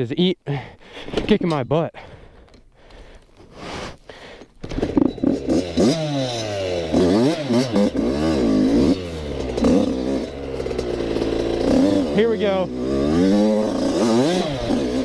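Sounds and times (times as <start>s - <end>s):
dirt bike engine revving: 4.6s - 15.0s.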